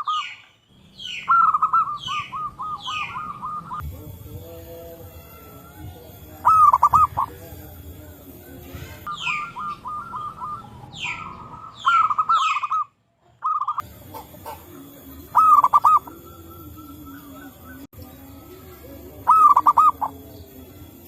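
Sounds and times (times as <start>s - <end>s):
high downward sweeping calls: 0.0s - 3.8s, 5.2s - 7.3s, 9.0s - 13.8s, 15.1s - 20.2s
doves cooing: 0.0s - 21.0s.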